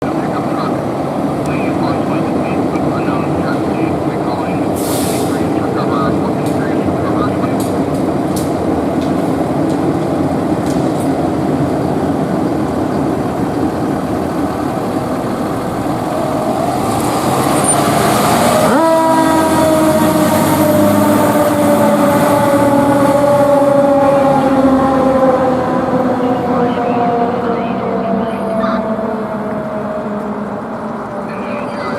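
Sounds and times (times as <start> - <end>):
fire engine running: 0.0 - 31.9
siren falling in pitch: 16.0 - 31.9.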